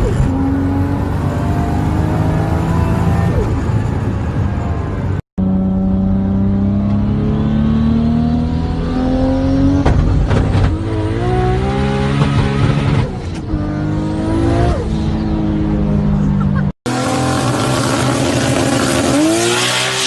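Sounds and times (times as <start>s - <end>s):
turbocharged engine accelerating: 0.0s - 20.0s.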